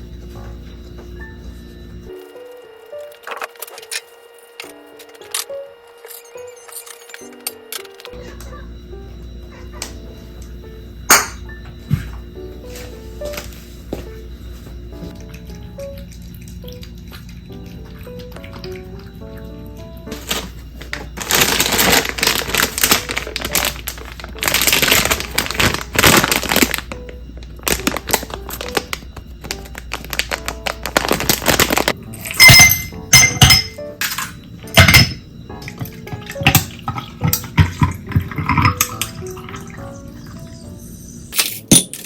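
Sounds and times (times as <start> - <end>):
soft background music: 0.0 - 42.0
dishes clinking: 32.2 - 39.8
running water: 35.7 - 40.9.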